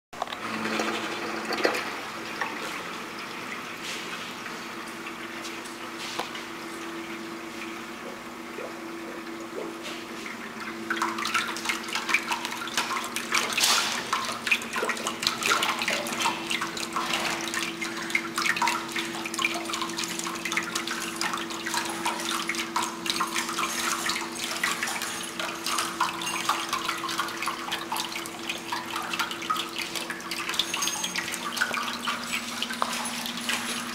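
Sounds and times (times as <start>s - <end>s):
water running down glass wall: 9.4s - 33.9s
water splashing into reservoir: 10.9s - 33.7s.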